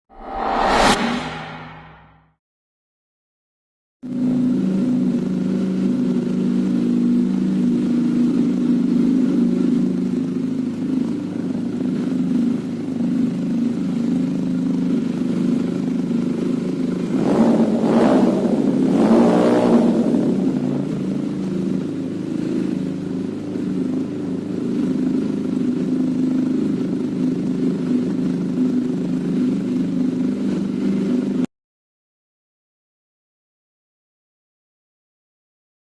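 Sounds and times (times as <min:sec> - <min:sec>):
motorcycle engine idling: 0:04.1 - 0:31.4.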